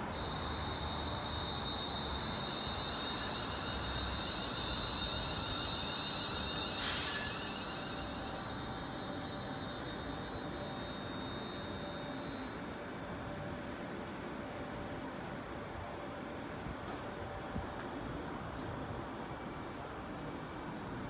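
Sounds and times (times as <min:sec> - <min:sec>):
electric train high whine: 0:00.0 - 0:21.0
pneumatic brake air hiss: 0:02.7 - 0:10.0.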